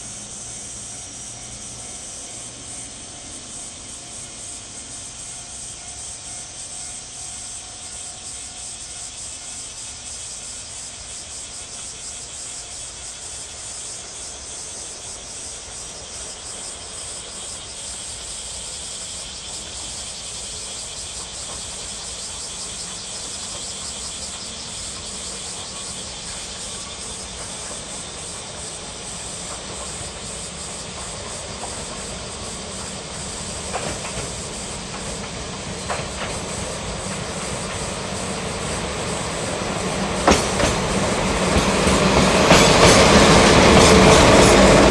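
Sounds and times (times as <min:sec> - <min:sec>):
freight train running hiss: 0:00.0 - 0:44.9
sharp clicks from rails: 0:20.8 - 0:44.9.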